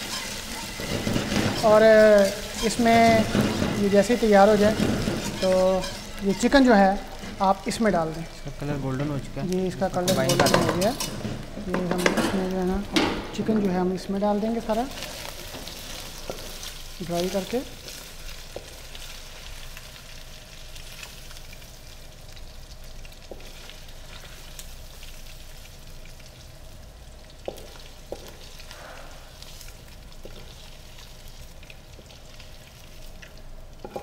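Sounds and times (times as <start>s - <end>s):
chicken sizzling in a pan: 0.0s - 34.0s
spatula knocking against a pan: 2.8s - 3.9s.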